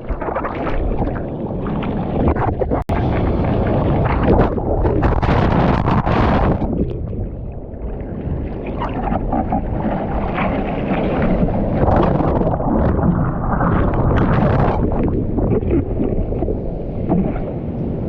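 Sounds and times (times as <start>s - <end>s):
wind buffeting microphone: 0.0s - 18.0s
sea water splashing in surf: 7.9s - 18.0s.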